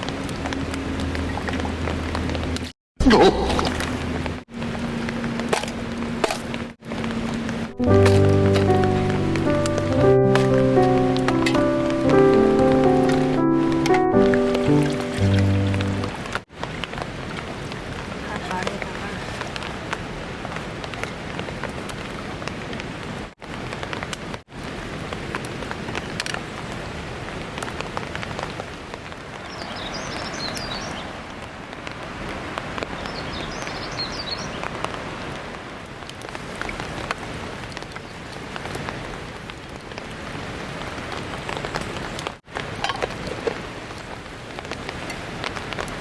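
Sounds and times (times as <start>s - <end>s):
steady rain falling: 0.0s - 2.7s, 3.7s - 46.0s
raindrops tapping: 3.8s - 16.3s.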